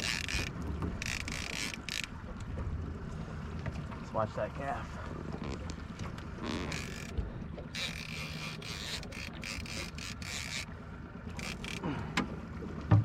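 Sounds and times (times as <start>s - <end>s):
fishing reel ratcheting: 0.0s - 2.2s, 6.4s - 10.7s, 11.4s - 11.8s
outboard motor running: 0.0s - 13.0s.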